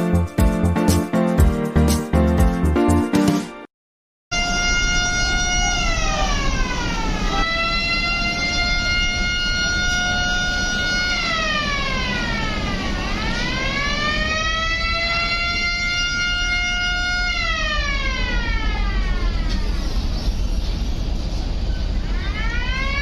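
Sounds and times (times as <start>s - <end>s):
boat horn blast: 4.3s - 6.5s, 7.4s - 11.8s.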